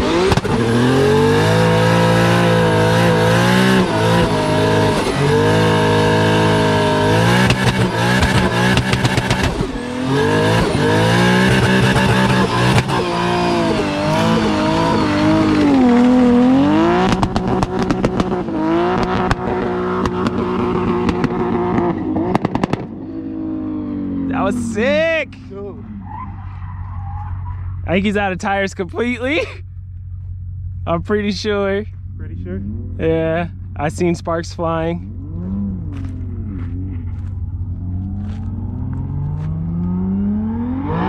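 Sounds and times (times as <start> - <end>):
sharp exhaust crackles: 0.0 - 23.5
car engine at high revs: 0.0 - 41.0
tire squeal: 2.5 - 18.2, 25.7 - 28.2.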